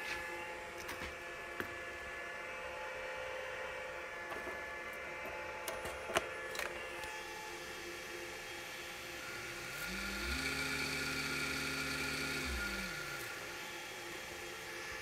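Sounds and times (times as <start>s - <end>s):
steady electrical hum: 0.0s - 15.0s
servo motor whirring: 9.4s - 13.6s.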